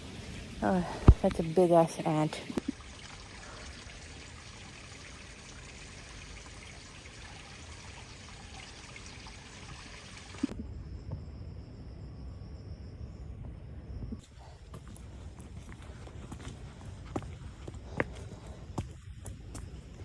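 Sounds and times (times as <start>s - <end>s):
trickling water: 0.0s - 10.6s.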